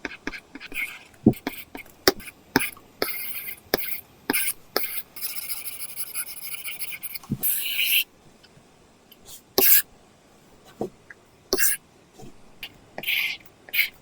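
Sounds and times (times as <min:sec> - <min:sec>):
stylus scratching on screen: 0:00.0 - 0:08.1, 0:11.6 - 0:11.8.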